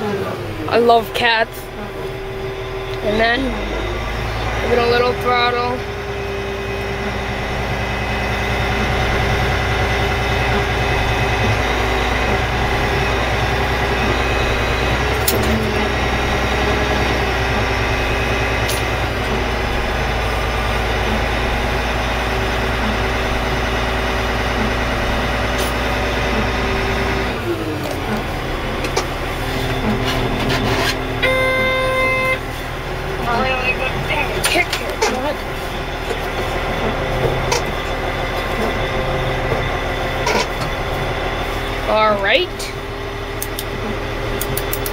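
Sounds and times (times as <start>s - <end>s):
diesel engine running: 0.0s - 44.9s
electronic warning beeper: 31.2s - 32.6s.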